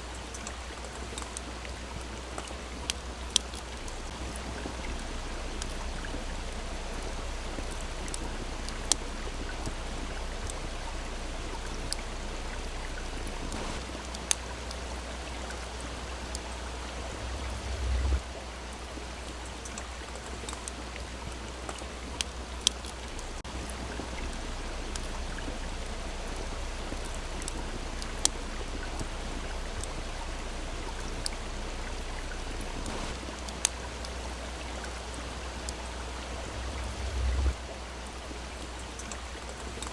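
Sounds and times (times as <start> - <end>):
stream rushing: 0.0 - 39.9
campfire crackling and popping: 0.2 - 18.2
low rumble: 3.7 - 19.0, 23.0 - 33.2, 35.7 - 38.0.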